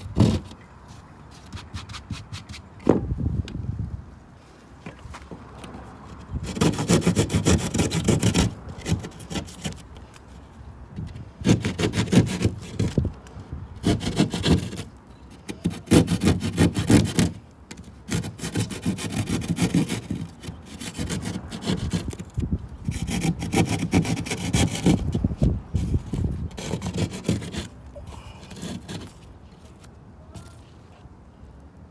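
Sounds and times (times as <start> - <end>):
saw rasping through drywall: 0.0 - 0.5, 6.4 - 9.8, 11.4 - 13.0, 13.8 - 14.9, 15.5 - 22.3, 22.9 - 25.2, 25.8 - 27.8, 28.4 - 29.2.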